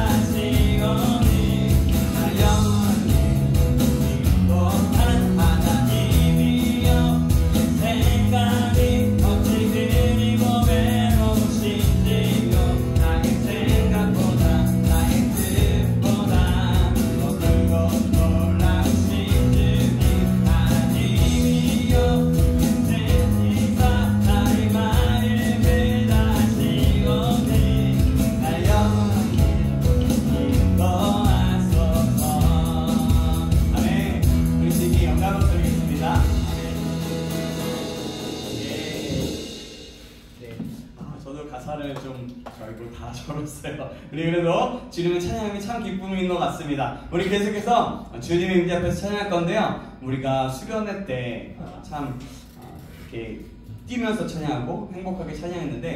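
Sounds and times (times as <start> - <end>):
sung vocals: 0.0 - 40.7
live band playing worship song: 0.0 - 41.0
steady drum beat: 0.0 - 41.1.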